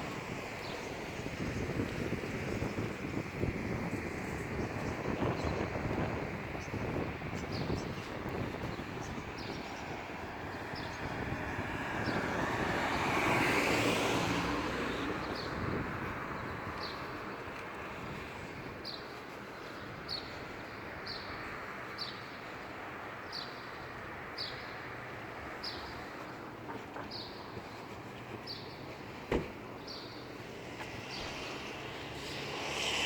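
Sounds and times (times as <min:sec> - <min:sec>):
traffic noise: 0:00.0 - 0:33.0
vehicle passing by: 0:10.4 - 0:16.5, 0:29.9 - 0:33.0.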